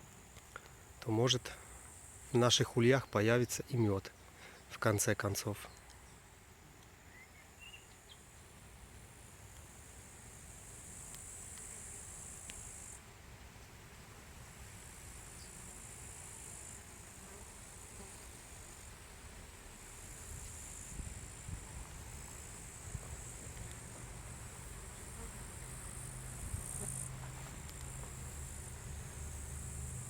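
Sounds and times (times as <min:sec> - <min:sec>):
faint hum of bees and insects: 0:00.0 - 0:30.0
high-pitched insect trill: 0:10.3 - 0:13.0.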